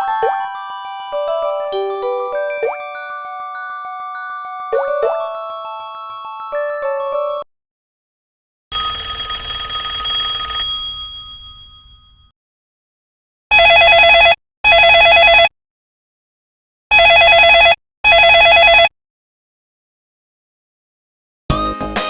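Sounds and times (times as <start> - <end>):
chiming tone: 0.0 - 7.5
warbling phone ringtone: 0.0 - 7.5, 8.7 - 12.2.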